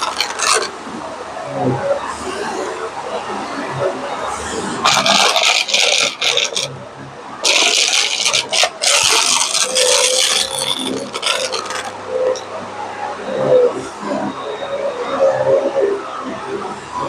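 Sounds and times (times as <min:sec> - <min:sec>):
vacuum brushroll scraping: 0:00.0 - 0:00.7, 0:04.8 - 0:06.7, 0:07.4 - 0:12.4.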